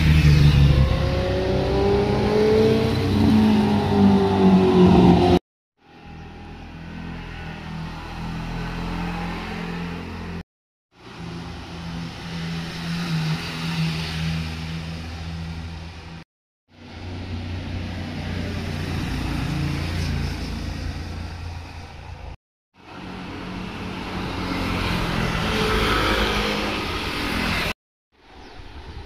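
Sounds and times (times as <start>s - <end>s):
motorcycles revving past: 0.0s - 5.4s, 22.9s - 27.8s.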